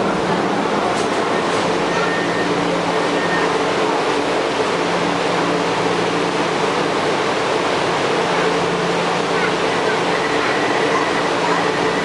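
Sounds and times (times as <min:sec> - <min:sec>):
metro train running noise: 0:00.0 - 0:12.0.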